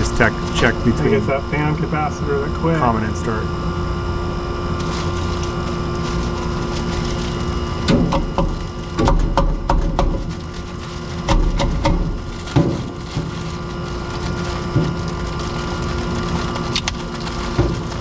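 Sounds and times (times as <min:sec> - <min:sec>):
machine hum: 0:00.0 - 0:12.5.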